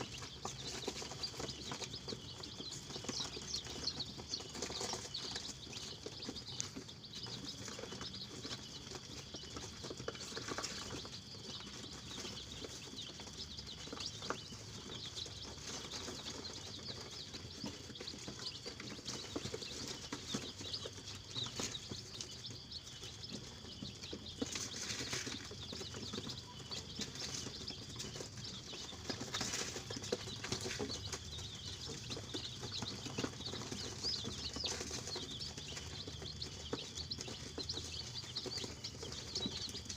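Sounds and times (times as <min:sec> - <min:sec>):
chickens chirping and peeping: 0:00.0 - 0:39.9.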